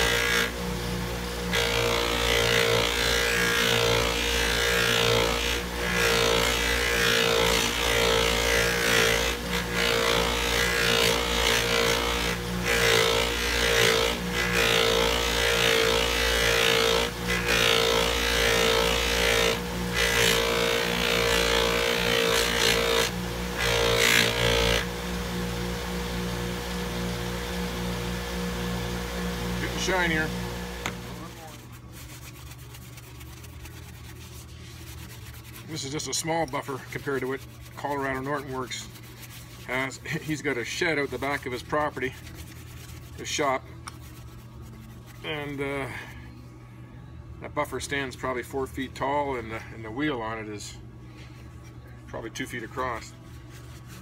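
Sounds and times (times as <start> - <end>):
bench buffer motor hum: 0.0 - 32.6
metal rubbing on buffing wheel: 31.2 - 45.8.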